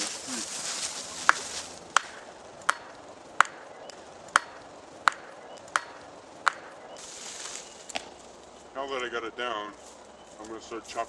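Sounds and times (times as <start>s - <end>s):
rustle: 0.0s - 5.1s, 5.7s - 11.0s
hand tool chopping tree trunk: 1.2s - 3.6s, 4.3s - 6.7s.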